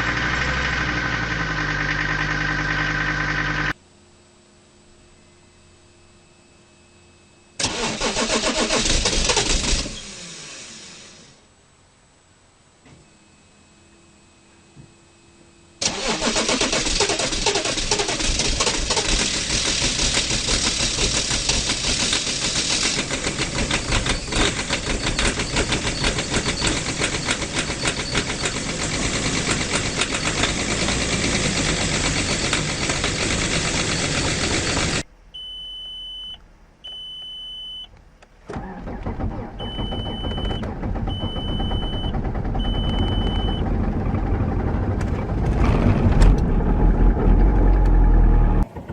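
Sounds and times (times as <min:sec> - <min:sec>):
diesel engine running rough: 0:00.0 - 0:03.8, 0:15.8 - 0:35.1, 0:38.5 - 0:48.9
high beeps: 0:35.4 - 0:37.9, 0:39.6 - 0:43.6.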